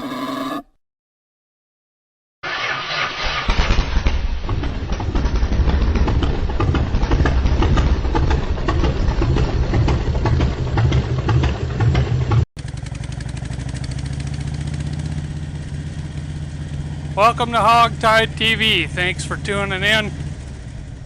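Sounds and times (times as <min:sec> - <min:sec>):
motorcycle engine running: 0:04.4 - 0:21.0.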